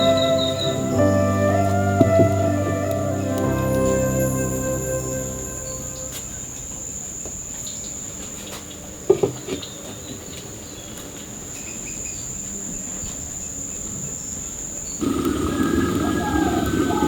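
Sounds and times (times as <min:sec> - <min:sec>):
short louder sound: 0:00.0 - 0:07.2.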